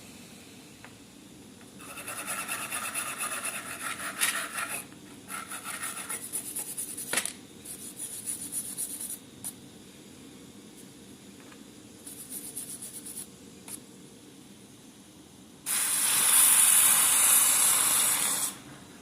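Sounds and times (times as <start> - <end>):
abrasive rubbing on metal wrench: 1.8 - 7.1.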